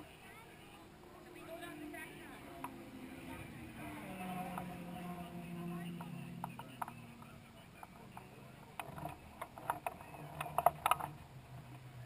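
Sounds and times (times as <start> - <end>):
racing car engine idling: 0.0 - 12.0
sharp clicks and taps: 6.0 - 11.8.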